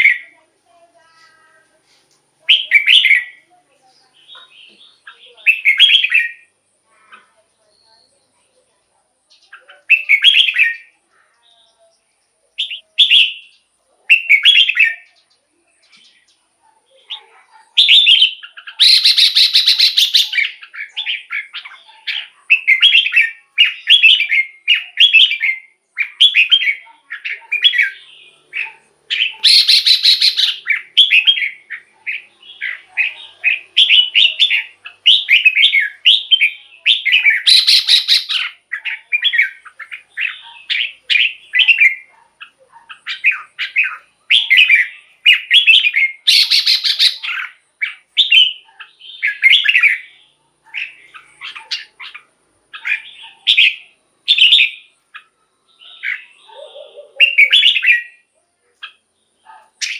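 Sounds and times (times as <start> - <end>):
bird whistled song: 2.5 - 3.4, 4.2 - 6.5, 9.9 - 10.9, 12.6 - 15.1, 17.8 - 42.1, 42.9 - 59.9
harsh scratchy bird call: 17.8 - 21.7, 27.5 - 42.1, 43.0 - 48.6.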